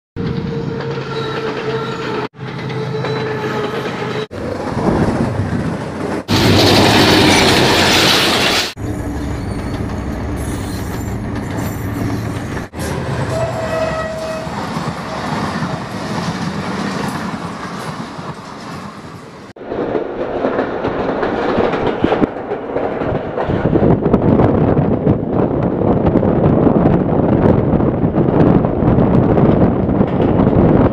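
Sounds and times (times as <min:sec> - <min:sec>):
low rumble inside moving train: 0:00.2 - 0:30.9
train wheels clattering over rails: 0:14.5 - 0:25.6.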